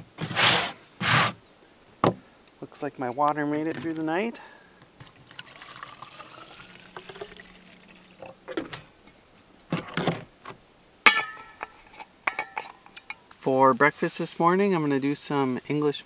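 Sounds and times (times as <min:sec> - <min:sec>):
water pouring into container: 0:05.0 - 0:08.7
sharp ringing clank: 0:11.1 - 0:11.7.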